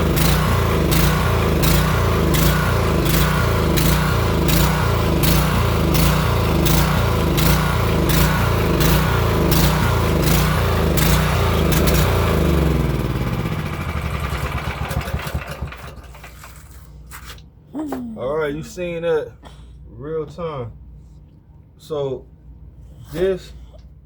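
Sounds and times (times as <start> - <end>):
small gasoline engine running: 0.0 - 16.8.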